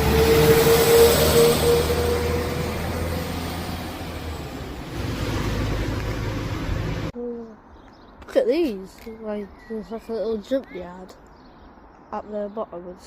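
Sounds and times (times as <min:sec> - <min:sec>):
train passing: 0:00.0 - 0:07.1
engine drone: 0:00.0 - 0:07.2.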